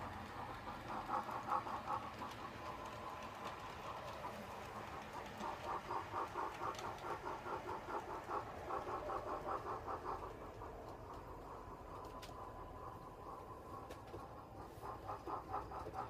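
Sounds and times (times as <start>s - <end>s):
steam locomotive exhaust chuffs: 0.0s - 16.0s.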